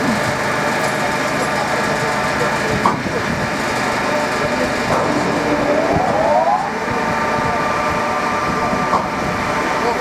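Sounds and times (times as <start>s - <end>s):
timber processing machinery running: 0.0s - 10.0s
motor whine spinning up: 4.8s - 8.2s.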